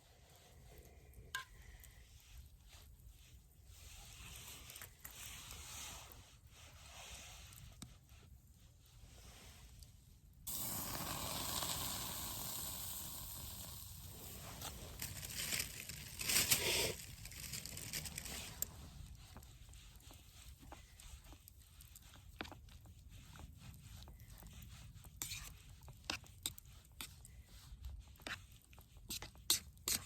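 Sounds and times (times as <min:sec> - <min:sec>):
food sizzling on griddle: 0:10.5 - 0:14.4.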